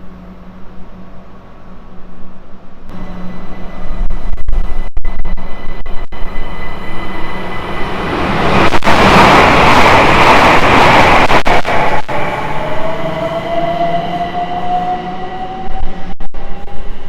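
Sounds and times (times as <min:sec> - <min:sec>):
train passing at speed: 0:05.6 - 0:17.0.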